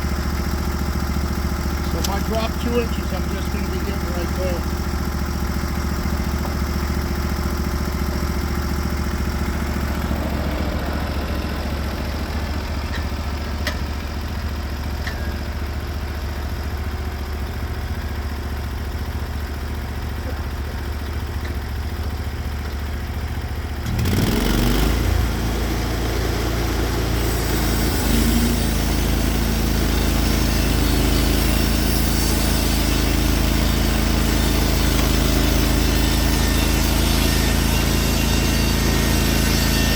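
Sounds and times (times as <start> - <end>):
band saw cutting log: 0.0 - 5.2, 23.8 - 39.9
sawmill gas engine running: 0.0 - 39.9.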